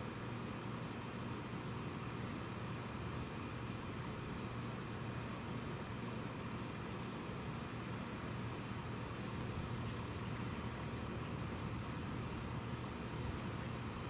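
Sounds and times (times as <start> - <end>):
faint small bird chirps: 9.3 - 11.5.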